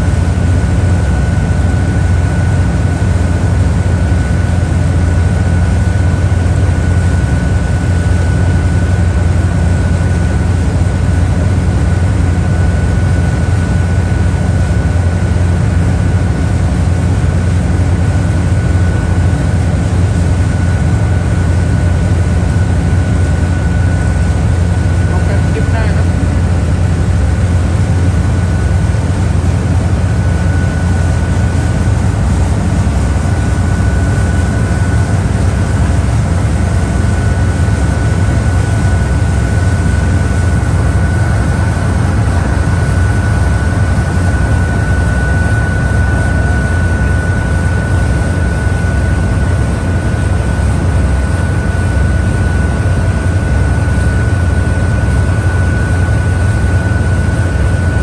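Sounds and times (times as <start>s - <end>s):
boat engine droning: 0.0s - 58.0s
high whine: 20.4s - 54.4s.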